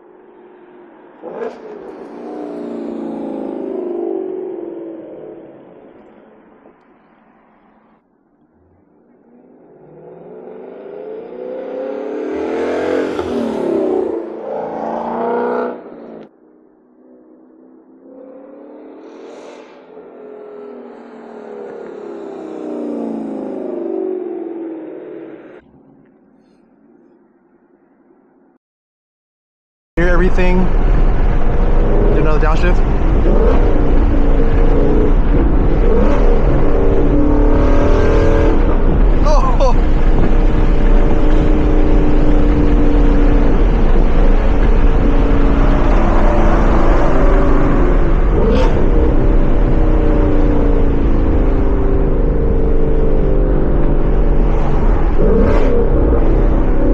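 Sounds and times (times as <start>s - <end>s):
car engine accelerating hard: 8.5s - 16.3s, 30.0s - 56.9s.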